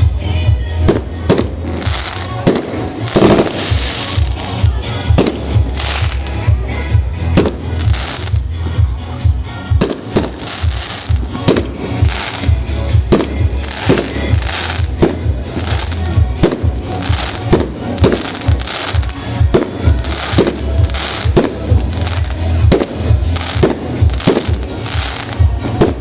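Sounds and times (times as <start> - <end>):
fireworks shells bursting: 0.9 - 26.0.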